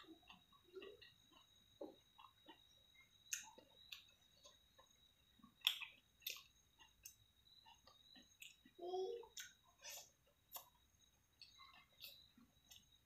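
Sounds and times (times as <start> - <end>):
close-up chewing with wet clicks: 0.0 - 13.0.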